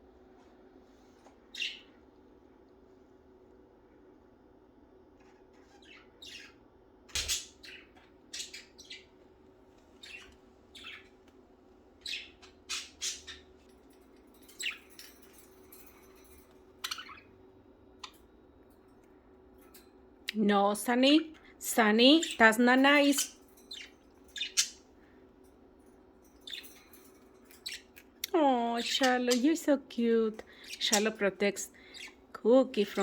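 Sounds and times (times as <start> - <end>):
faint steady hum: 0.0 - 33.0
budgerigars chirping and squawking: 1.5 - 2.0, 5.2 - 9.2, 10.0 - 11.2, 12.0 - 13.6, 14.4 - 16.1, 16.8 - 17.3, 22.2 - 24.9, 26.3 - 28.1, 28.8 - 29.7, 30.3 - 33.0.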